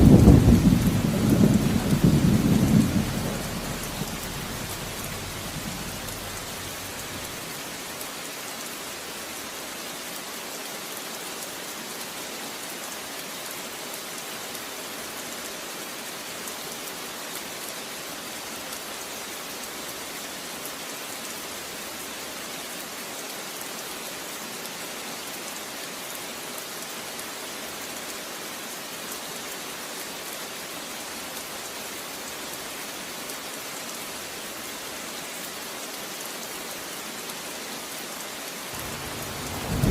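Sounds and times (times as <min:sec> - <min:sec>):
thunder rumbling: 0:00.0 - 0:07.4, 0:38.8 - 0:39.9
heavy rain falling: 0:00.0 - 0:39.9.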